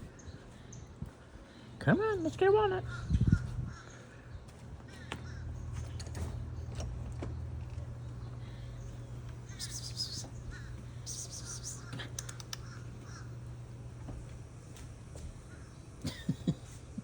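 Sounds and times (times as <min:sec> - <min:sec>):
low rumble: 0:02.8 - 0:03.8
harsh rasping bird calls: 0:02.8 - 0:14.0
faint bird chirps: 0:08.2 - 0:13.4.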